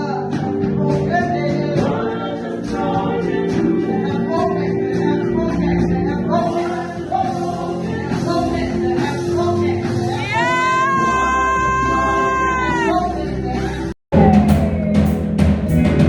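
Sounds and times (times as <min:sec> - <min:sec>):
people singing gospel: 0:00.0 - 0:15.1
held instrumental chords: 0:14.1 - 0:16.0.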